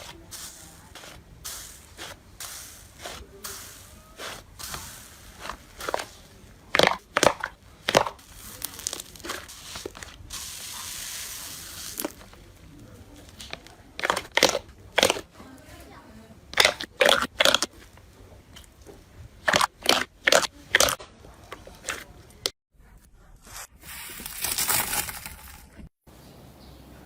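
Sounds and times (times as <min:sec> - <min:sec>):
slime squishing with pops: 0:04.1 - 0:10.2, 0:13.4 - 0:15.3, 0:16.6 - 0:17.8, 0:19.4 - 0:21.0.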